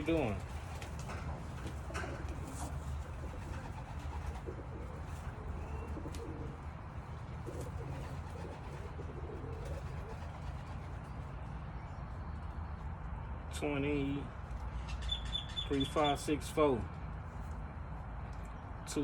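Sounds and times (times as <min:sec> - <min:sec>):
pigeons cooing: 0:00.0 - 0:11.3.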